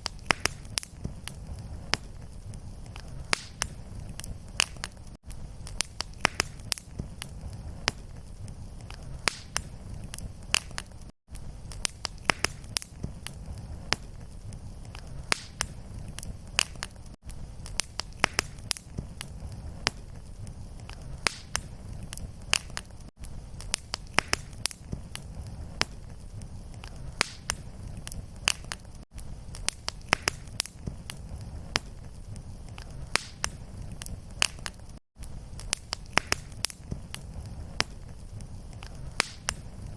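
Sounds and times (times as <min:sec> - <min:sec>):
low rumble of flames: 0:00.0 - 0:39.9
wood fire crackling: 0:00.0 - 0:39.9.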